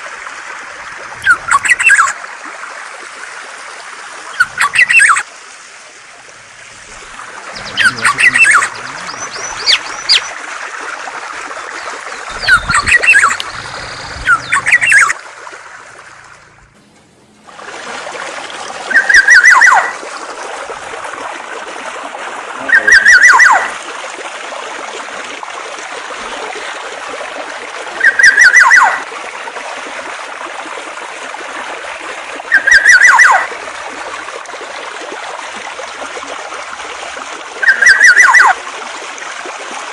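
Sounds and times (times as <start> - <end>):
flowing water hiss: 0.0 - 39.9
songbird calls: 1.2 - 2.2, 4.3 - 5.2, 7.5 - 10.4, 11.7 - 15.2, 18.9 - 20.0, 22.6 - 23.8, 28.0 - 29.0, 32.5 - 33.5, 37.6 - 38.6
bird trill with falling note: 7.6 - 10.3, 12.2 - 15.2, 18.9 - 20.0.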